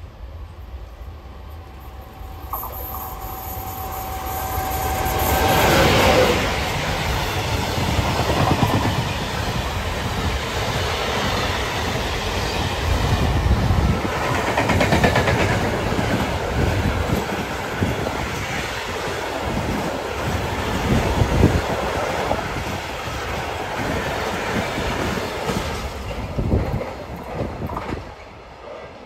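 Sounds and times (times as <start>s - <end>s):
electric locomotive passing: 0.0s - 29.0s
train wheels clattering over rail joints: 14.0s - 18.6s.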